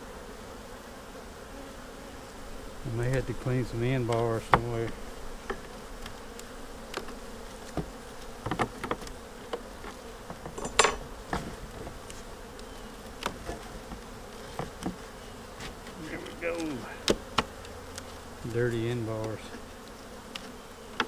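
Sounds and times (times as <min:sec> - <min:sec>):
bees buzzing: 0:00.0 - 0:21.0
wooden frames knocking and scraping: 0:07.7 - 0:12.0, 0:13.2 - 0:17.5.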